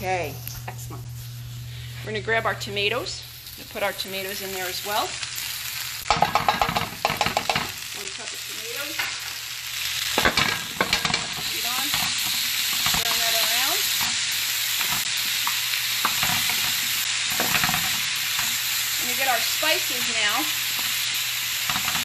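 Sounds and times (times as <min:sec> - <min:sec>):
vegetables sizzling in a pan: 0:00.0 - 0:22.0
spatula knocking and scraping pan: 0:06.1 - 0:07.8, 0:10.2 - 0:13.1, 0:14.8 - 0:18.5.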